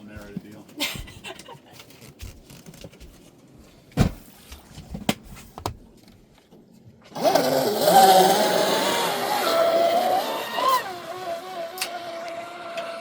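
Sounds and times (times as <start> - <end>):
electric motor whine: 7.2 - 13.0.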